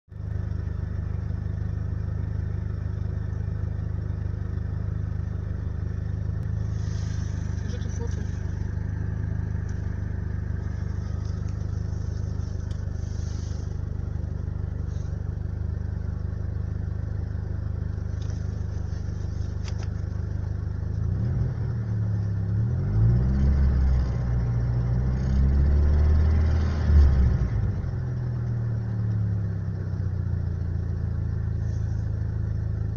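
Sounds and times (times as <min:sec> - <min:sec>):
car engine idling and revving: 0:00.1 - 0:32.9.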